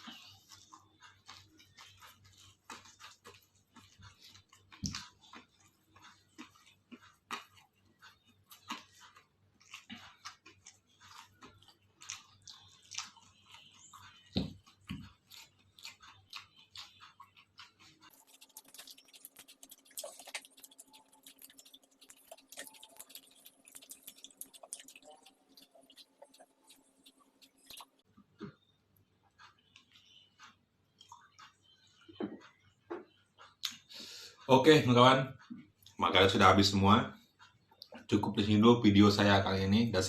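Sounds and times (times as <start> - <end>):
person chewing food: 0.0 - 34.5, 37.2 - 38.2.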